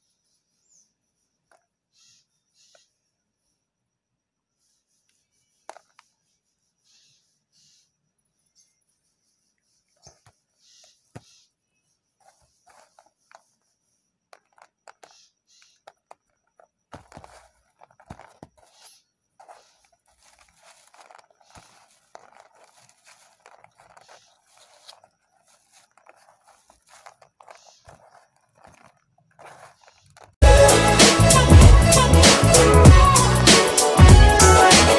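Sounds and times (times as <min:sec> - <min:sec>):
knife scraping soap: 0:14.4 - 0:30.4
loud music with heavy beat: 0:30.4 - 0:34.9.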